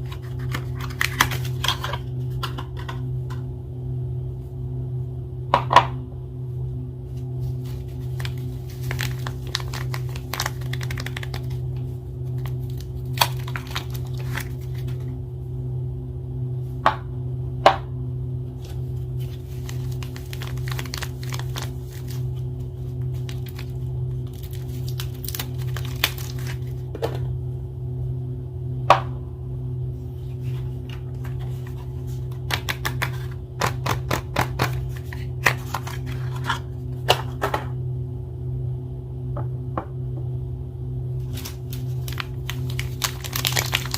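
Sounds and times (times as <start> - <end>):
wrappers crinkling and tearing: 0.0 - 1.9, 7.5 - 15.1, 19.2 - 26.9, 34.4 - 36.6, 41.2 - 43.9
steady low drone: 0.0 - 43.9.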